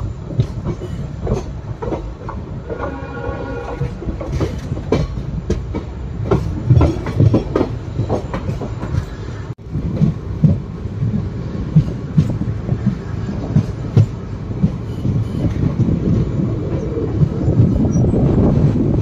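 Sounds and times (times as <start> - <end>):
train coach rumble: 0.0 - 19.0
train wheels clattering over joints: 0.0 - 19.0.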